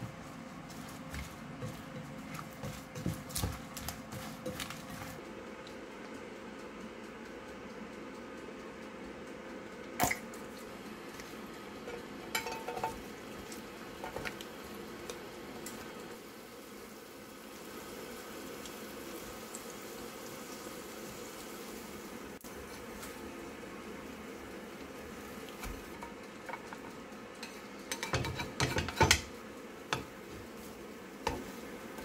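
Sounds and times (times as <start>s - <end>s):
batter sizzling in oil: 10.0s - 32.0s
utensils clinking against pan: 11.8s - 13.1s, 25.9s - 29.3s.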